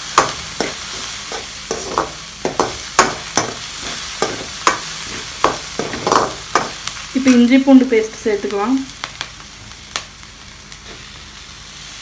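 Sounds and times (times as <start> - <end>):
onions sizzling in oil: 0.0 - 12.0
utensil scraping and knocking pan: 0.2 - 6.8.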